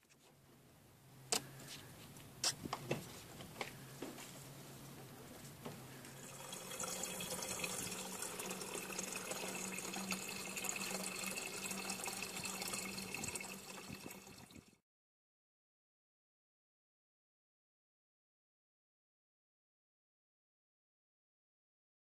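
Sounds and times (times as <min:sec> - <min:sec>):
liquid running and splashing: 0:06.2 - 0:14.8.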